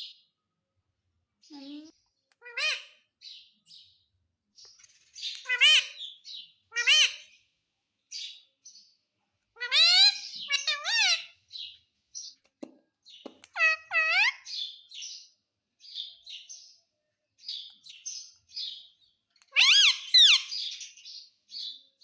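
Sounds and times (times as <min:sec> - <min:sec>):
parrot calling: 0:01.7 - 0:03.2, 0:05.3 - 0:07.4, 0:09.5 - 0:11.5, 0:13.4 - 0:14.8, 0:19.5 - 0:20.9
soft parrot chirps: 0:05.2 - 0:07.4, 0:19.4 - 0:21.0.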